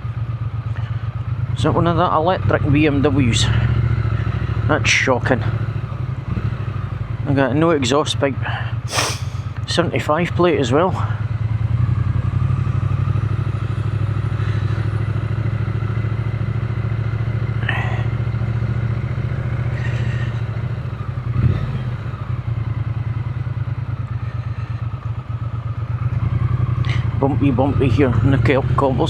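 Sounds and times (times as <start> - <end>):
motorcycle engine running: 11.0 - 28.9.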